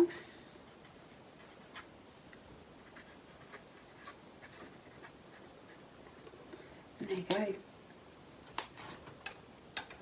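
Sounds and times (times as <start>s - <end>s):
faint ticks and scratches: 0.6s - 6.4s.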